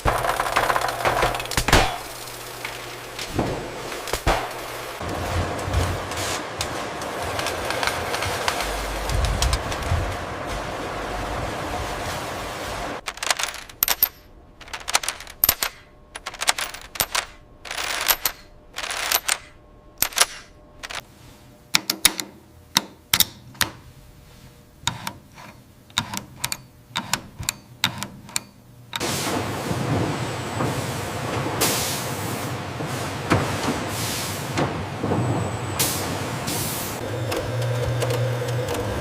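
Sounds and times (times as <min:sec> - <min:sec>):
machinery clicks and knocks: 0:00.0 - 0:10.7, 0:13.0 - 0:21.1, 0:24.8 - 0:29.1, 0:37.0 - 0:39.0
machinery running noise: 0:00.0 - 0:22.2, 0:24.2 - 0:39.0.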